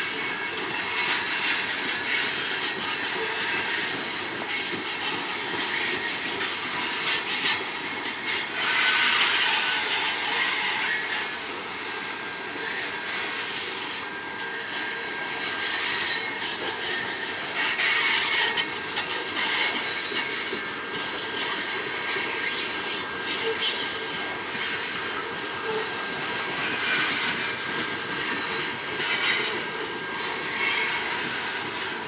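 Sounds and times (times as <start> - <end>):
high-pitched wheel squeal: 0.0 - 6.2, 15.8 - 20.4
train wheels on rails: 0.0 - 32.0.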